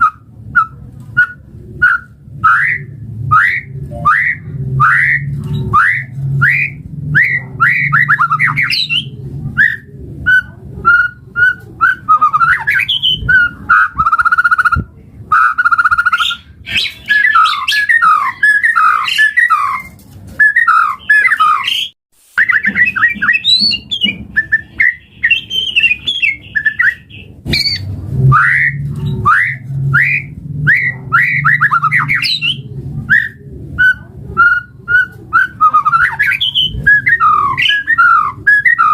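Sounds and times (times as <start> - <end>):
bird singing whistled song: 0.0 - 38.9.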